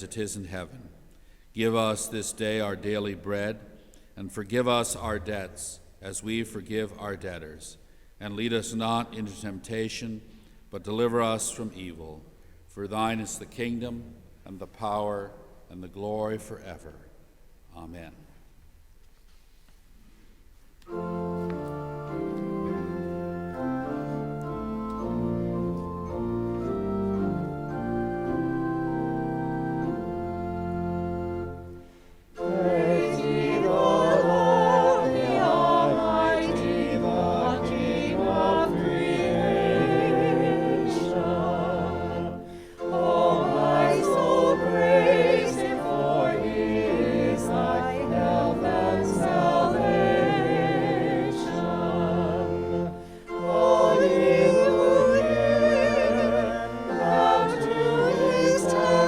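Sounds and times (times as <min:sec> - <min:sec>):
organ playing hymn chords: 0:01.5 - 0:07.0, 0:20.8 - 0:59.0
choir singing a hymn: 0:20.9 - 0:59.0.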